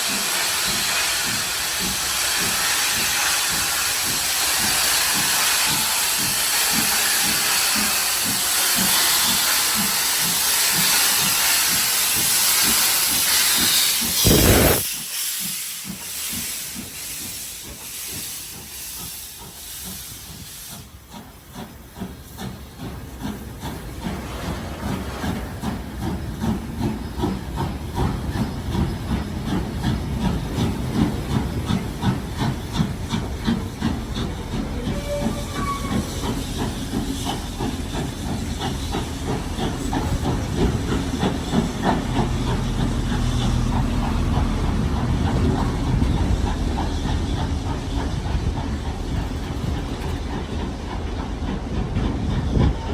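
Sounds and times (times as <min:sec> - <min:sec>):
loud blast of steam: 0:00.0 - 0:21.0, 0:23.6 - 0:28.4
steam locomotive chuffing: 0:00.0 - 0:52.9
steam locomotive hissing: 0:00.0 - 0:52.9.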